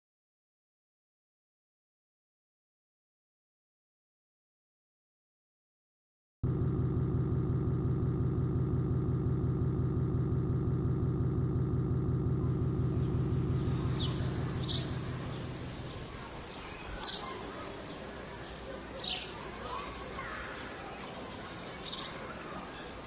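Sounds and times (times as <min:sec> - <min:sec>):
engine running with fast pulse: 0:06.4 - 0:20.1.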